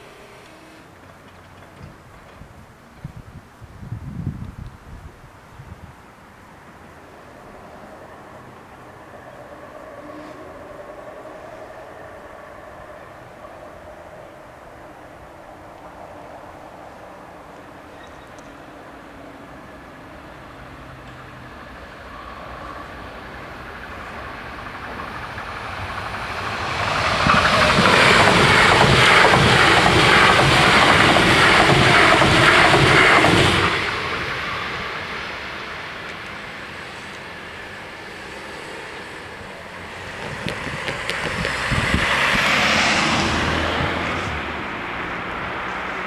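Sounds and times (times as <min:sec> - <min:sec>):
electric train rushing past: 0:00.0 - 0:02.5, 0:06.2 - 0:46.0
car driving over rails: 0:39.7 - 0:46.0.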